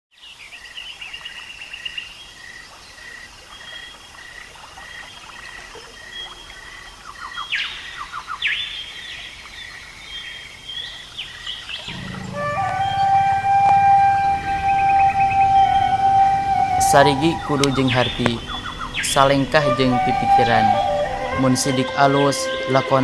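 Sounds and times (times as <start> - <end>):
open-air ambience: 0.2 - 22.8
bird trills: 11.9 - 21.5
bird repeating high note: 11.9 - 21.7
sweeping bird chirps: 11.9 - 21.8.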